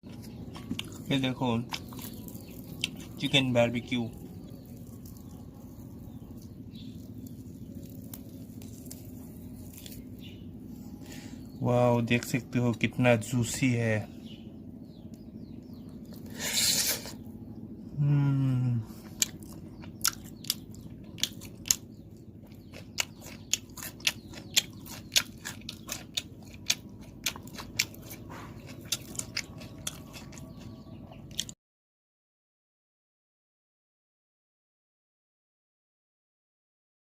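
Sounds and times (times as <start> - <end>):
person chewing with wet smacks: 0.1 - 10.4, 18.9 - 31.6
person humming: 17.9 - 18.9.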